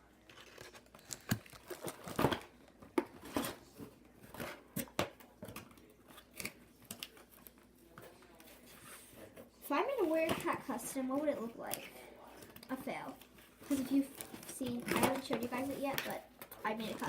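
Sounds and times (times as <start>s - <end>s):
plastic packaging crinkling: 0.2s - 3.4s, 12.7s - 17.0s.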